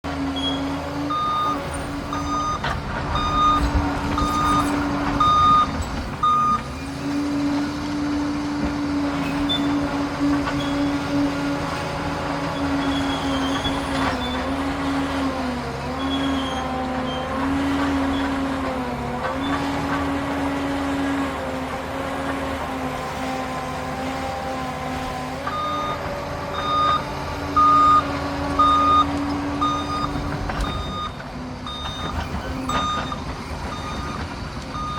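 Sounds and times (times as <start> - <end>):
bulldozer diesel engine droning: 0.0 - 34.9
reverse alarm beeping: 0.4 - 2.6, 3.2 - 6.7, 26.6 - 27.0, 27.6 - 34.2.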